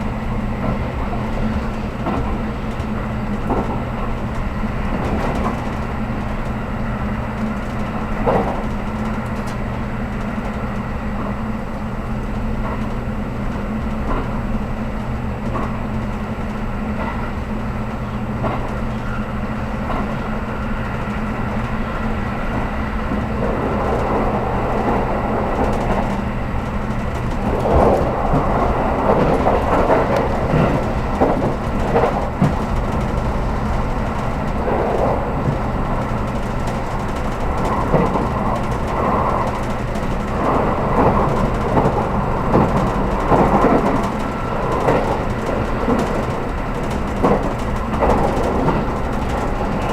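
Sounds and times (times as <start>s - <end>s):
train equipment low hum: 0.0s - 49.9s
rushing noise: 27.2s - 39.6s.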